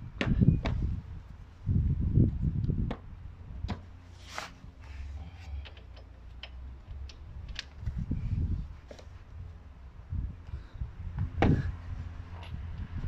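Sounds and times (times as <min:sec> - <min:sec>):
metallic clicks and taps: 0:05.6 - 0:07.8.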